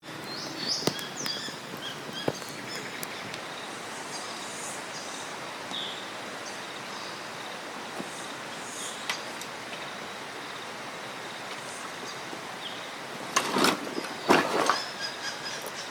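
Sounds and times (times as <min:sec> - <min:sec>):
steady hiss: 0:00.0 - 0:15.9
sharp clicks: 0:00.1 - 0:03.4
high bird chirps: 0:00.1 - 0:05.1.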